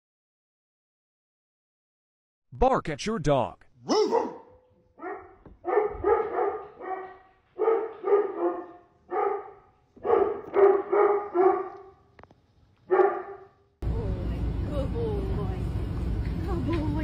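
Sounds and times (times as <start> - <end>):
dog barking: 3.8 - 12.0, 12.9 - 13.6.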